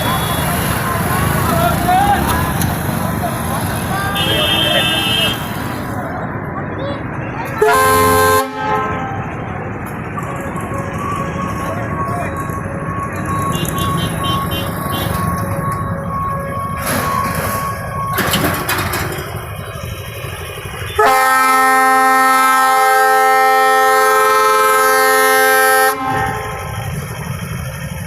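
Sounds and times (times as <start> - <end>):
vehicle engines passing: 0.0 - 28.0
train horn: 7.6 - 9.3, 21.0 - 26.9.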